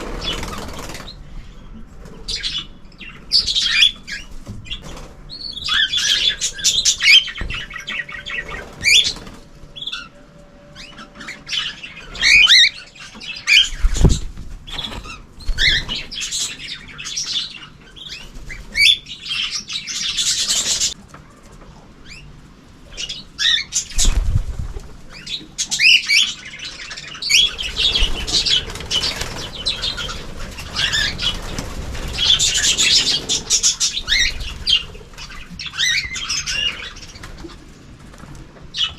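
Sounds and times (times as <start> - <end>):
wings flapping: 0.0 - 1.3, 4.0 - 10.1, 13.6 - 16.4, 23.8 - 25.3, 27.2 - 38.9
cage birds chirping and chattering: 0.0 - 38.9.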